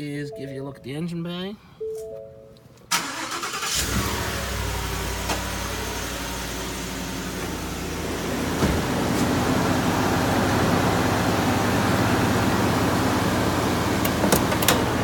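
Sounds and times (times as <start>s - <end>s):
engine idling: 3.0s - 15.0s.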